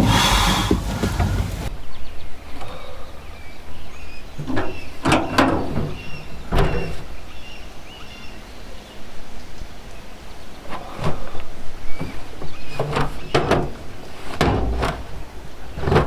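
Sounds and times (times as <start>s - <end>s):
sharp knocks and thuds: 0.0s - 1.7s.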